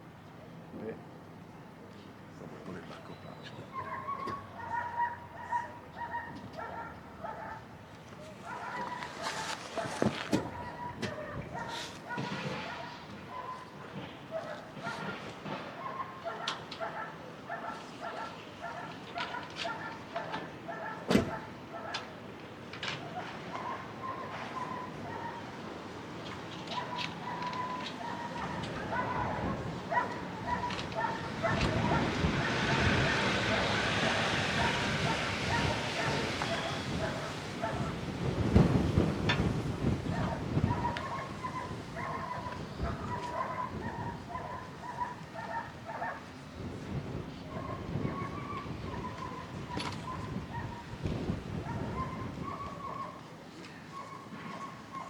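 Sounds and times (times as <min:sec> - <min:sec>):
handling noise with knocks: 0:08.2 - 0:13.2
low rumbling wind: 0:28.0 - 0:53.2.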